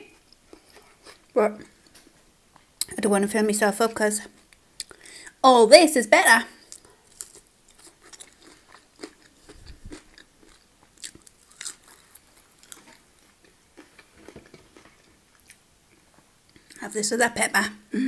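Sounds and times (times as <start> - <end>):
person chewing crunchy food: 0.0 - 2.9, 4.4 - 5.1, 6.6 - 16.8.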